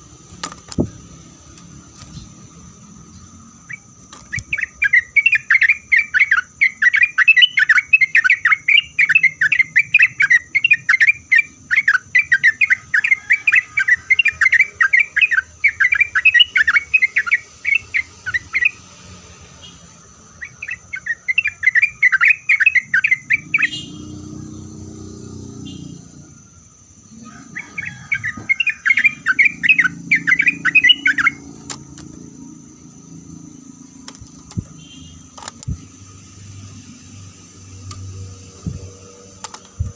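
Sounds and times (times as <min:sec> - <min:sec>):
bird chattering song: 0:00.8 - 0:18.9, 0:19.6 - 0:26.4, 0:27.0 - 0:36.9
high-pitched hum: 0:29.0 - 0:39.9.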